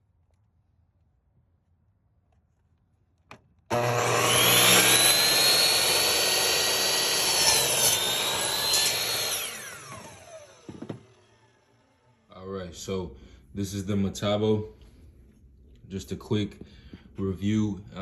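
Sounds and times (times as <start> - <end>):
miter saw motor whine: 3.7 - 12.3
knock: 10.6 - 11.0.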